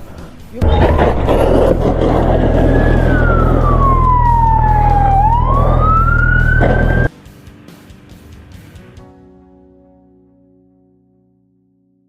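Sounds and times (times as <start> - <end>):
engine rumble: 0.6 - 7.1
police siren wailing: 0.7 - 7.1.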